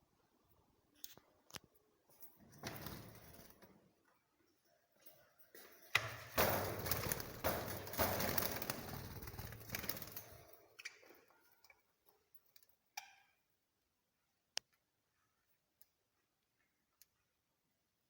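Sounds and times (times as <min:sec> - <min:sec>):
cage birds: 0:04.9 - 0:13.3.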